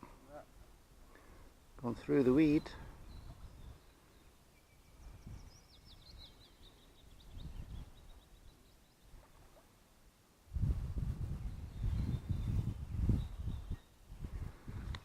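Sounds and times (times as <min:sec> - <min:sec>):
songbird twittering: 0:02.1 - 0:09.7, 0:11.4 - 0:14.0
wind buffeting microphone: 0:04.9 - 0:06.5, 0:07.1 - 0:08.2, 0:10.5 - 0:15.0.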